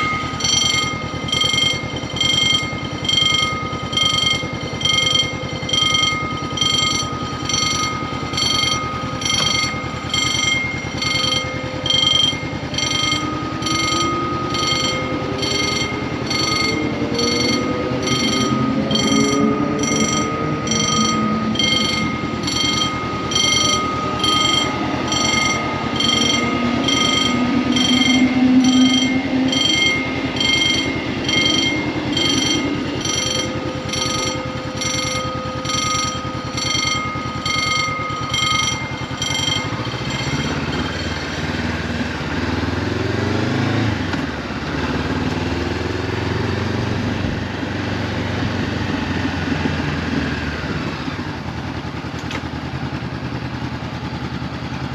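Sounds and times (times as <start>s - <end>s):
electronic warning signal beeping: 0.0s - 43.8s
motorcycle engine idling and revving: 0.0s - 54.9s.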